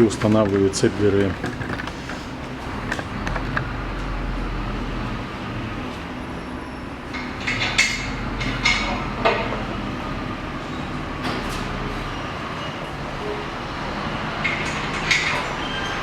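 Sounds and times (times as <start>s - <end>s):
metal clinks and knocks: 0.0s - 3.8s
steady low hum: 0.0s - 6.0s.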